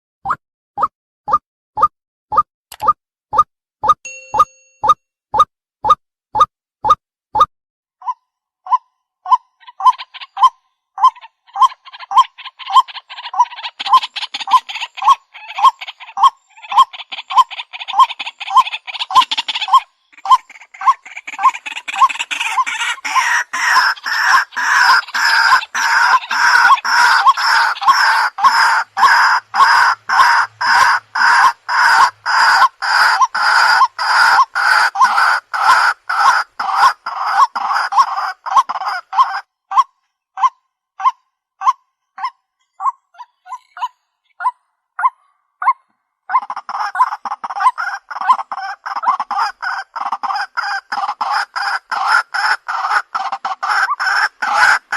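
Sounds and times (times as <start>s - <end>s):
chorus of overlapping bird calls: 8.0s - 45.4s, 46.3s - 54.9s
repeated waterhen call note: 19.2s - 42.3s.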